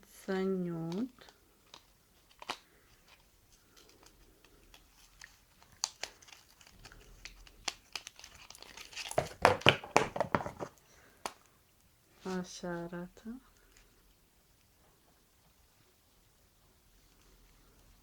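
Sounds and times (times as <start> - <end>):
packaging crinkling: 1.7 - 10.8
wrapping tearing: 3.6 - 9.5.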